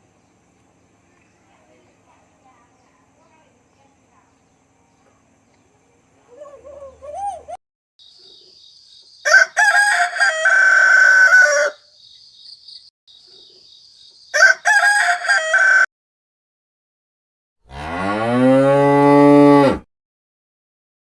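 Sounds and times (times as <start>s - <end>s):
rooster crowing: 9.2s - 11.8s, 14.3s - 15.9s.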